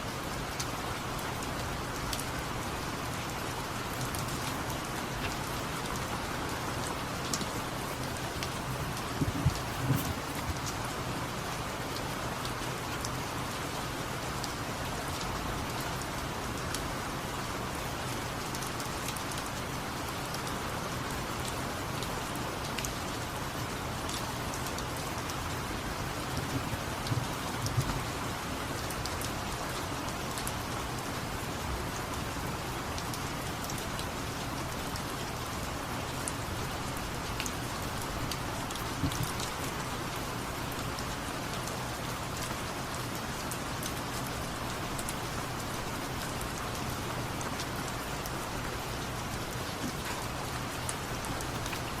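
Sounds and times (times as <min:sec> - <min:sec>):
steady rain hiss: 0:00.0 - 0:52.0
soft knocks: 0:03.8 - 0:10.6.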